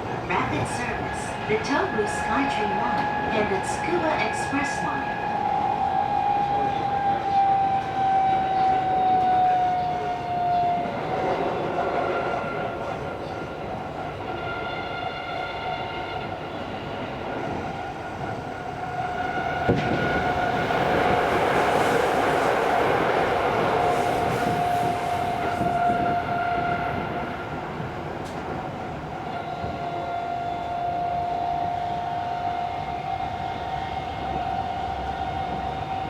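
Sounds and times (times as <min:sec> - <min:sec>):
subway motor whine: 0:00.0 - 0:36.0.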